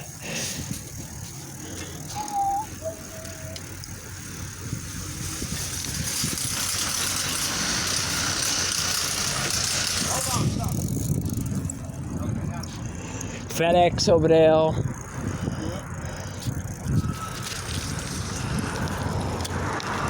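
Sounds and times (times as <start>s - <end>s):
bicycle rattling over road: 0.0s - 20.0s
road traffic hiss: 0.0s - 20.0s
bicycle squeak: 1.1s - 11.9s, 14.9s - 20.0s.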